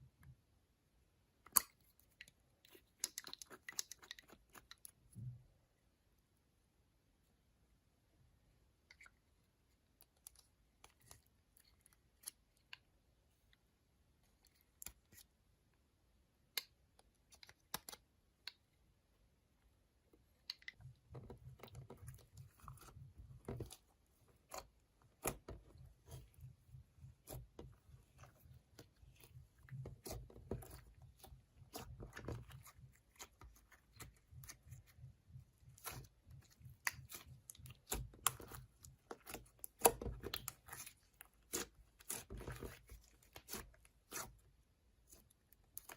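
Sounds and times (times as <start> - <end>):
slime crackling and squishing: 21.0 - 45.9.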